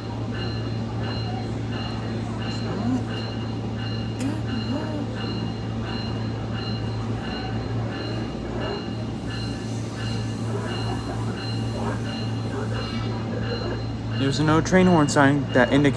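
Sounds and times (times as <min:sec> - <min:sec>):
diesel railcar engine drone: 0:00.0 - 0:15.9
bell ringing: 0:00.4 - 0:12.5.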